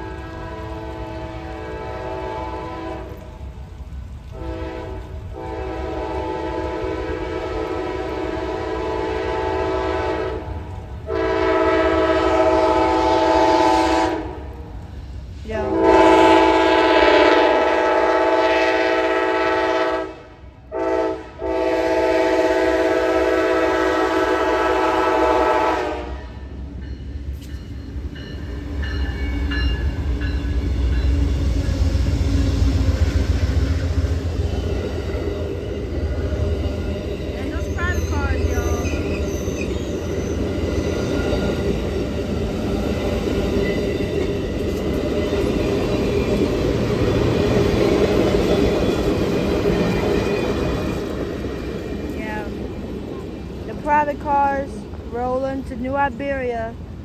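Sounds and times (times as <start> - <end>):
train air horn blasts: 0.0 - 3.2, 4.3 - 10.5, 11.1 - 14.7, 15.6 - 26.5
train rumbling past: 0.0 - 57.0.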